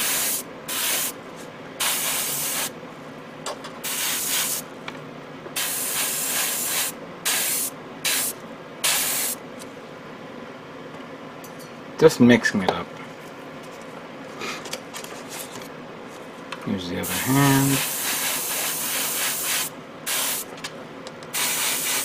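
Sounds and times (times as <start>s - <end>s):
airbrush spraying hiss: 0.0s - 1.2s, 1.8s - 2.7s, 3.8s - 4.6s, 5.6s - 9.4s, 17.0s - 20.5s, 21.3s - 22.0s.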